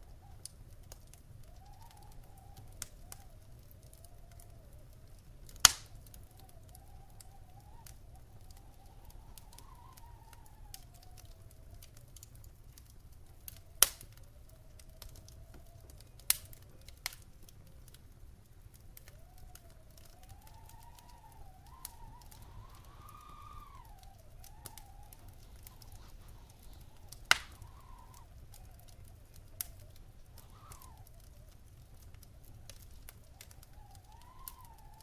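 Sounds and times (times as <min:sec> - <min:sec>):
wood fire crackling: 0:00.0 - 0:35.0
faint wavering whistle: 0:01.4 - 0:05.0, 0:06.2 - 0:11.8, 0:19.0 - 0:31.6, 0:32.9 - 0:35.0.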